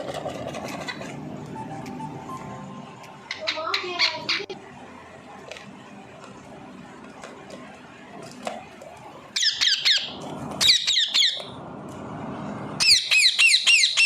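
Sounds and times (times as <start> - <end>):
parrot squawking: 3.3 - 4.6, 9.4 - 11.5, 12.8 - 14.0.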